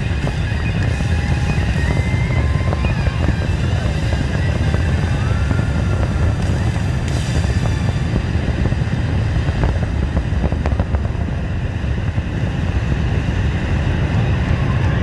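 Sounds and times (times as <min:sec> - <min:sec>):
fireworks booms: 0:00.0 - 0:11.4
fireworks crackles: 0:00.0 - 0:15.0.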